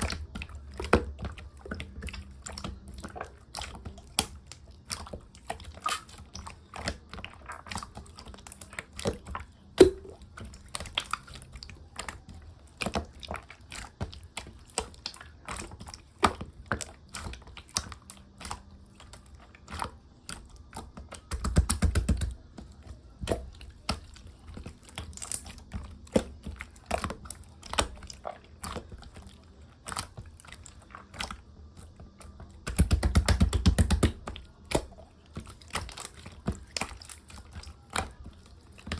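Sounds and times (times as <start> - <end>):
slime squishing: 0.0 - 38.9
slime clicking and popping: 9.8 - 11.2, 21.1 - 22.5, 32.6 - 35.0.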